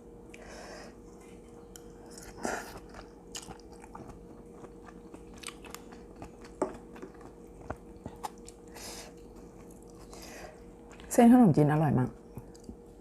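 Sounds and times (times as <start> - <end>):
crunchy chewing: 1.3 - 11.1.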